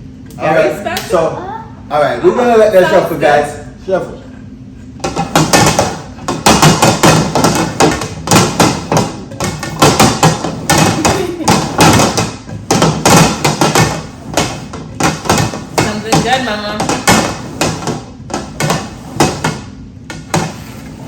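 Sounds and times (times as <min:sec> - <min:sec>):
rapid knocking and thumping: 0:05.0 - 0:21.0.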